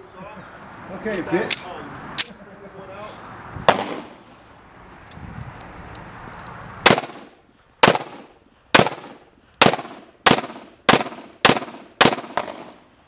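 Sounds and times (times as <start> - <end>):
pistol shots: 3.7 - 4.2, 6.8 - 12.8.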